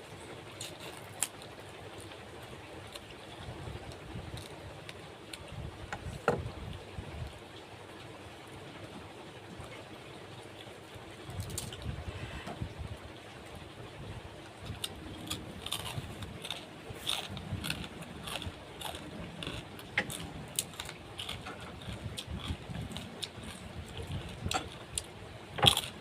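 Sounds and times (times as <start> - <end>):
eating clicks and crunches: 0.5 - 2.2, 11.3 - 11.9, 14.6 - 26.0.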